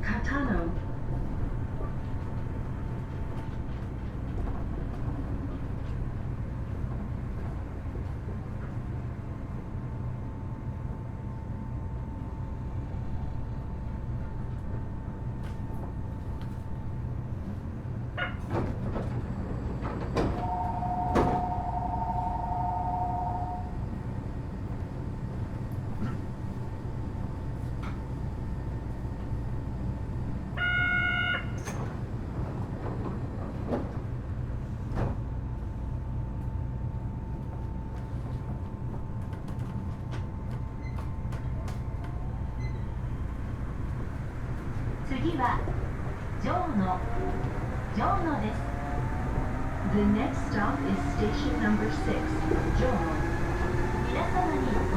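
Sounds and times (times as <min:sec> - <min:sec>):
two-note door chime: 0:20.4 - 0:23.6.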